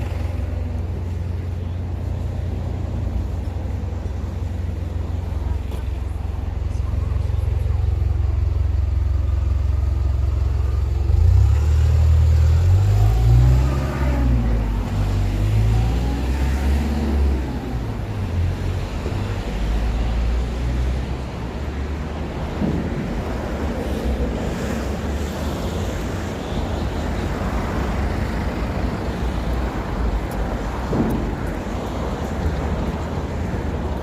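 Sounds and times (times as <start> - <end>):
low rumble of street traffic: 0.0 - 34.0.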